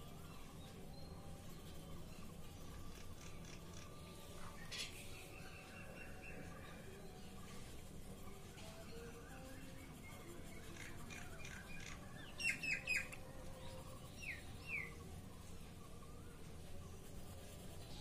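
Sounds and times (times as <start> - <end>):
bird chirps: 10.2 - 15.1.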